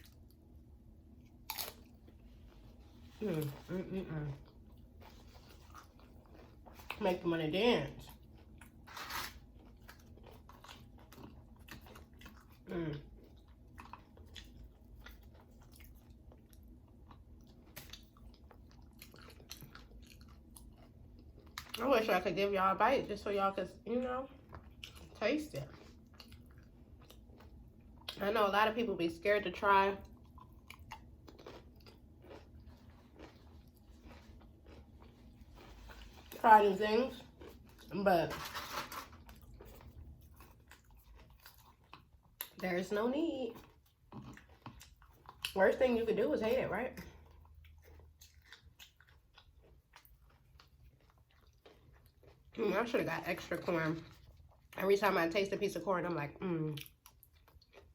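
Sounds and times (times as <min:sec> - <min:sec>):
crunchy chewing: 0:01.2 - 0:07.0, 0:08.0 - 0:21.8, 0:24.4 - 0:28.2, 0:30.0 - 0:36.4, 0:37.1 - 0:42.6, 0:43.5 - 0:45.6, 0:47.0 - 0:52.6, 0:56.8 - 0:57.9.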